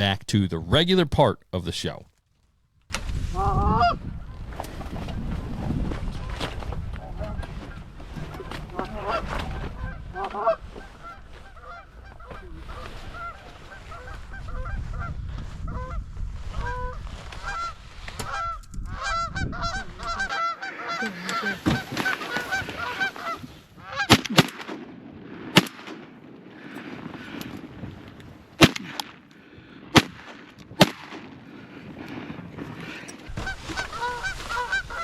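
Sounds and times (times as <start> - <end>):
wind rumble on microphone: 2.9 - 20.3
geese honking: 18.3 - 24.1, 33.3 - 35.0
shotgun shots: 28.6 - 29.1, 30.0 - 31.3.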